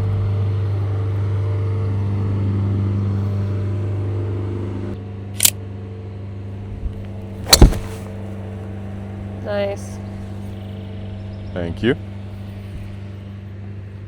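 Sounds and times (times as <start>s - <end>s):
golf club striking ball: 7.4s - 8.5s.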